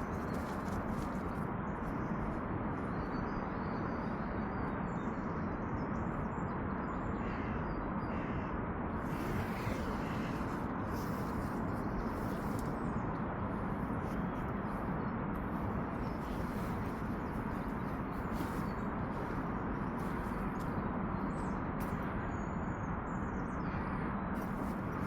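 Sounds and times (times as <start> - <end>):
outdoor background noise: 0.0 - 25.0
crow cawing: 7.2 - 8.5.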